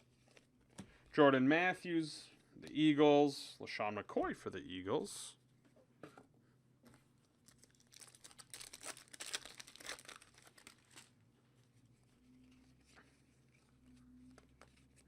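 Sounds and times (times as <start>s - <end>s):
plastic wrapper crinkling and tearing: 7.3s - 15.0s.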